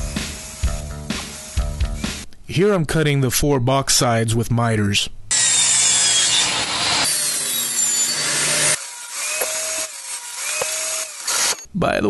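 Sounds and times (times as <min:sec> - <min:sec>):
saw motor hum: 0:00.0 - 0:02.3, 0:05.3 - 0:11.7
table saw cutting wood: 0:00.0 - 0:02.3, 0:05.3 - 0:11.7.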